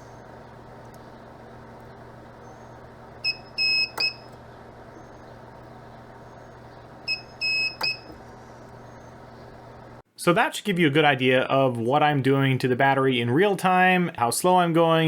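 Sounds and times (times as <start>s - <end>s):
low hum: 0.0s - 10.0s
spot welder beeping: 2.4s - 4.4s, 6.2s - 9.2s.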